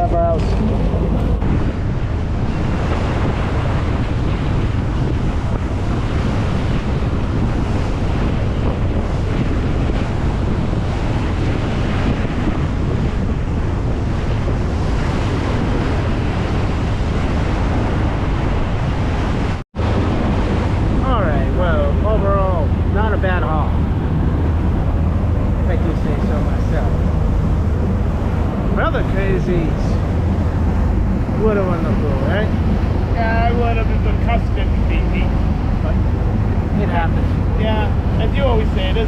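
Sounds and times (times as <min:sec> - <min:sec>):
sea water and waves rushing: 0:00.0 - 0:39.0
wind buffeting microphone: 0:00.0 - 0:39.0.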